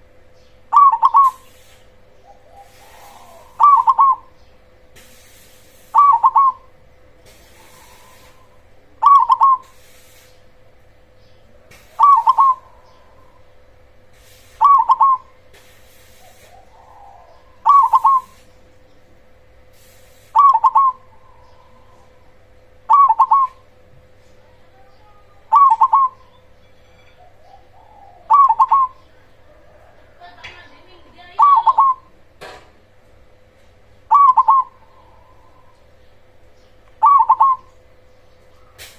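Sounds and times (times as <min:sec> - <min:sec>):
dove cooing: 0:00.7 - 0:04.4, 0:05.8 - 0:10.0, 0:11.5 - 0:13.7, 0:14.5 - 0:15.4, 0:16.1 - 0:18.6, 0:20.4 - 0:26.4, 0:27.2 - 0:30.5, 0:31.3 - 0:32.1, 0:34.1 - 0:36.1, 0:36.9 - 0:37.8.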